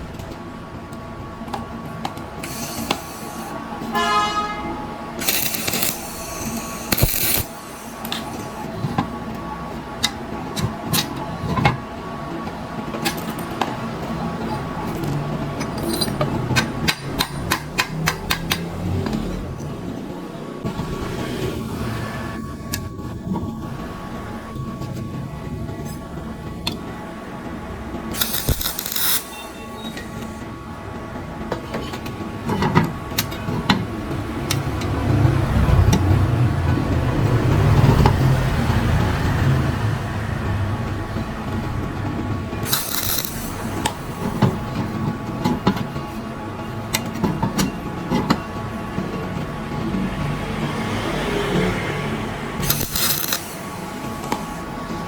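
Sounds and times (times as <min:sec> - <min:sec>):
low mechanical rumble: 0:04.6 - 0:46.9
sharp clicks and knocks: 0:14.5 - 0:19.7.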